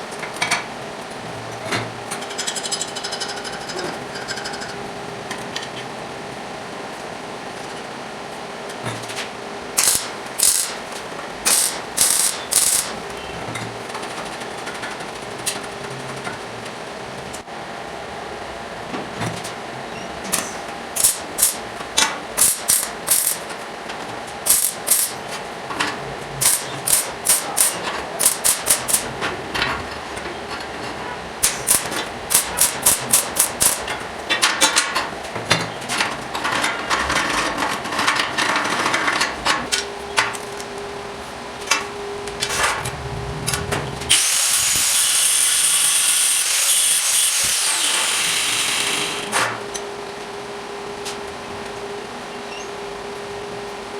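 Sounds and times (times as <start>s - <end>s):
power tool whining: 9.8s - 10.8s, 11.5s - 13.0s, 44.0s - 49.4s.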